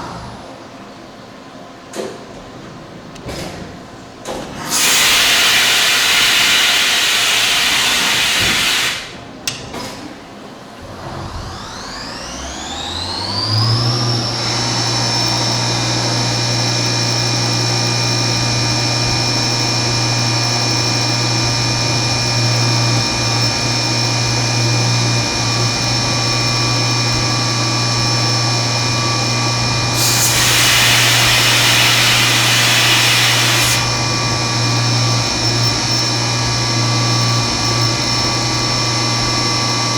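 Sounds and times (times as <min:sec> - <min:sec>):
milling machine spindle whine: 0:04.3 - 0:09.6, 0:10.6 - 0:39.9
loud hiss: 0:04.6 - 0:09.2, 0:29.9 - 0:34.0.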